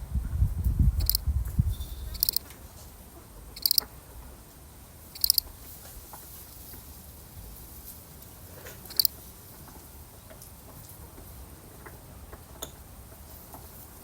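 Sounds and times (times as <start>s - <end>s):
cricket chirping: 1.0s - 1.2s, 1.8s - 2.4s, 3.6s - 3.9s, 5.1s - 5.5s, 8.9s - 9.2s.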